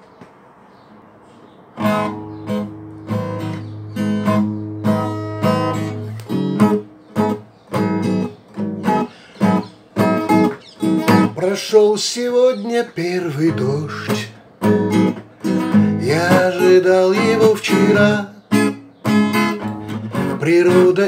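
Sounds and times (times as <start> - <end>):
acoustic guitar strumming chords: 1.8 - 21.0.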